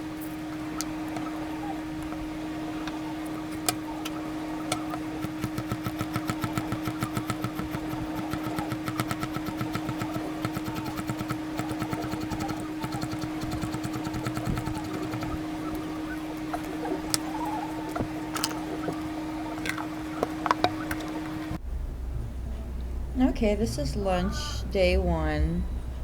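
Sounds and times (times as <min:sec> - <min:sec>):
clicks: 0:00.0 - 0:21.6
fast even tapping: 0:00.0 - 0:21.6
steady hum: 0:00.0 - 0:26.0.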